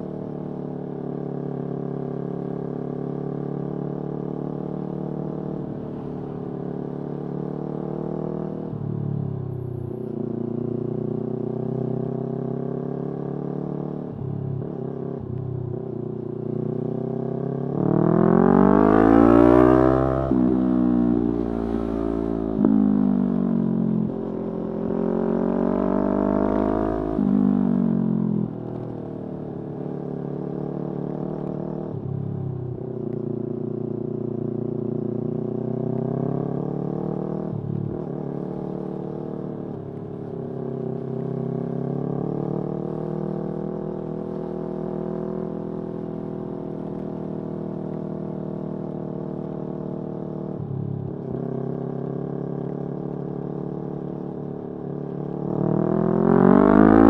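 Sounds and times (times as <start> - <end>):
motorcycle engine revving through gears: 15.8 - 32.4, 34.7 - 57.0.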